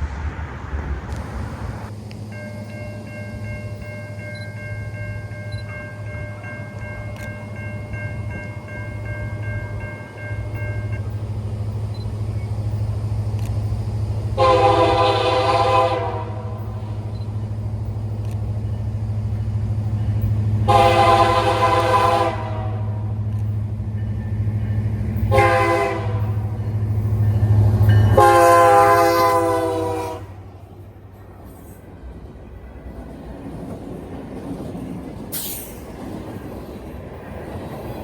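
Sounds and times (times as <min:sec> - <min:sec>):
low train rumble: 0:00.0 - 0:38.0
locomotive air horn blasts: 0:14.4 - 0:17.0, 0:20.6 - 0:23.2, 0:25.3 - 0:26.6, 0:28.0 - 0:30.5.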